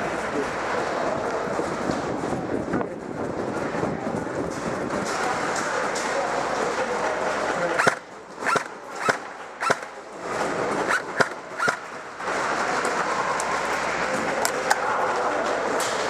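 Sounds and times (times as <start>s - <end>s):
noisy background: 0.0s - 16.0s
airsoft gun shots: 7.8s - 10.0s, 10.9s - 11.9s.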